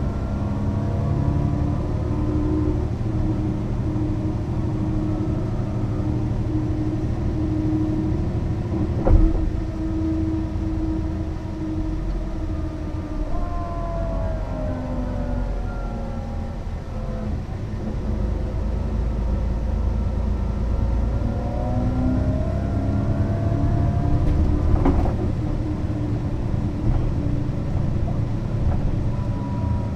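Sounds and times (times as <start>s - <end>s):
bus engine running: 0.0s - 29.9s
road and cabin rumble: 0.0s - 29.9s.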